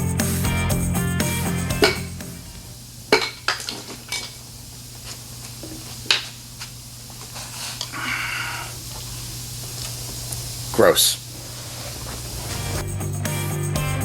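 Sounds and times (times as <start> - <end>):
background music: 0.0 - 2.6, 12.6 - 14.0
steady low hum: 0.0 - 13.2.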